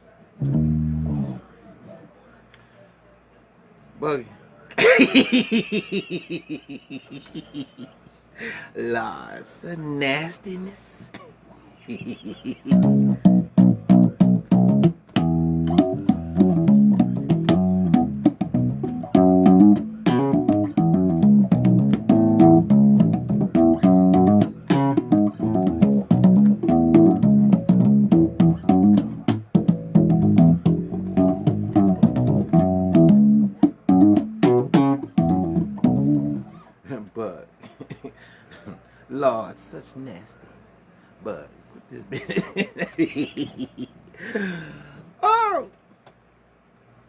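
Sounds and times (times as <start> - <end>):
bass guitar riff: 0.4 - 1.4, 12.7 - 36.7.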